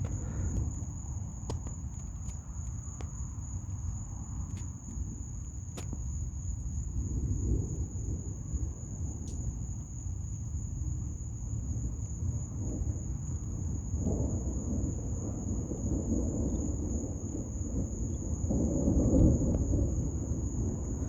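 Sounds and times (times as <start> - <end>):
distant thunder rumbling: 0.0 - 2.0, 12.6 - 21.0
crickets chirping: 0.0 - 21.0.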